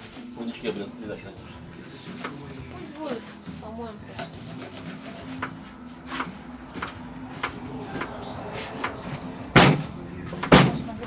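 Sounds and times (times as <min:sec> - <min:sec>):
loud sharp thump: 0:08.8 - 0:11.0.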